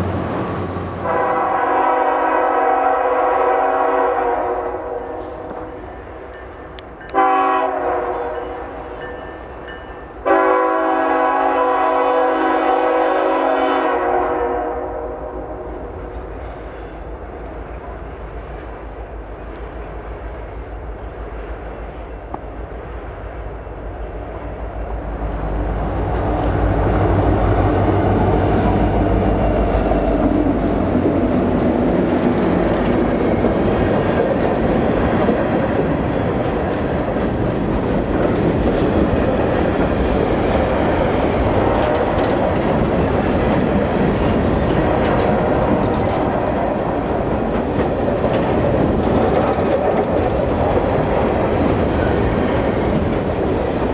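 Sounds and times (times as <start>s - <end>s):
freight train rumble: 0.0s - 53.9s
wheels clattering on rail: 26.0s - 53.9s.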